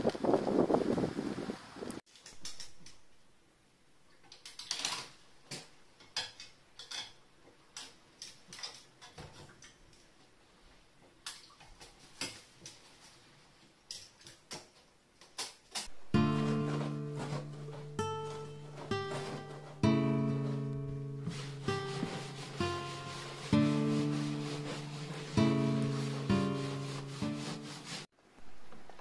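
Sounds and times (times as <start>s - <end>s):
acoustic guitar strum: 15.9s - 27.7s.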